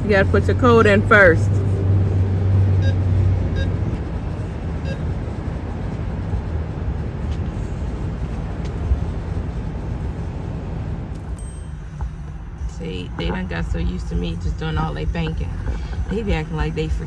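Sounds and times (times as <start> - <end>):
car engine idling: 0.0 - 17.0
electronic keypad beeps: 2.8 - 3.0.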